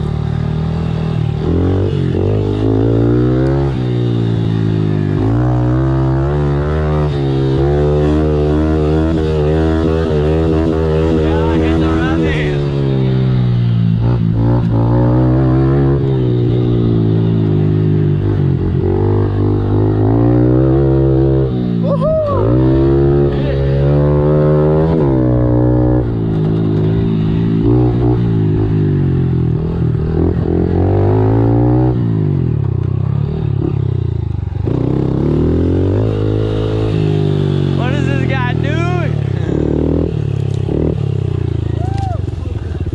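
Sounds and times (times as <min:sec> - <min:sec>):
pit bike engine revving: 0:00.0 - 0:42.9.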